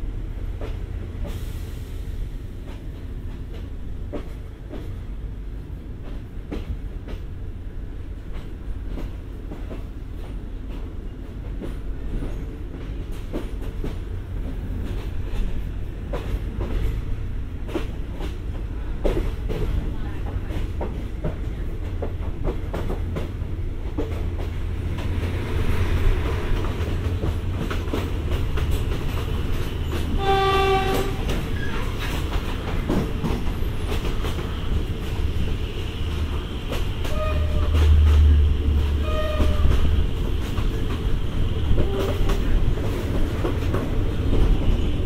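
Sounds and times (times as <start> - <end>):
train rumble and wheel clatter: 0.0 - 45.0
higher horn toots: 30.2 - 31.3
locomotive horn blast: 30.2 - 31.3, 37.0 - 38.0, 39.0 - 39.9.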